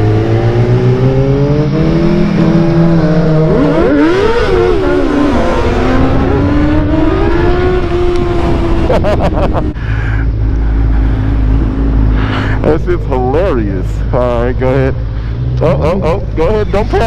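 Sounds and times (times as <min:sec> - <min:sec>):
motorcycle engine accelerating: 0:00.0 - 0:09.8.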